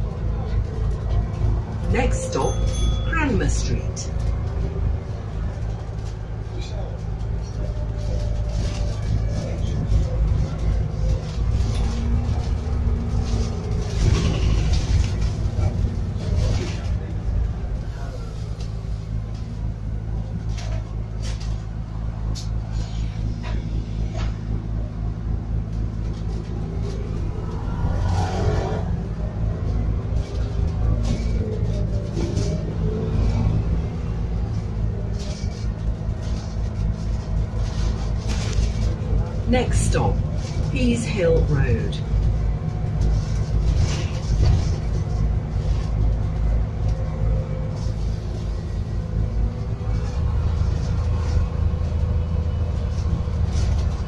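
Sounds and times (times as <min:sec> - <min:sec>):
bus engine running inside bus: 0:00.0 - 0:54.0
rattles and clicks from bus body: 0:00.0 - 0:54.0.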